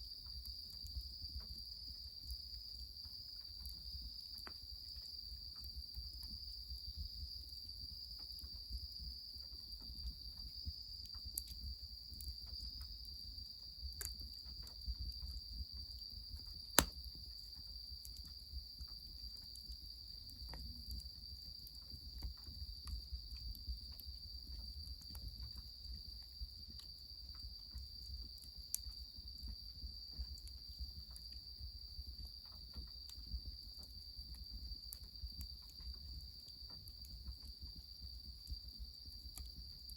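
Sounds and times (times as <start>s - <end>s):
firewood crackling: 16.8s - 17.2s.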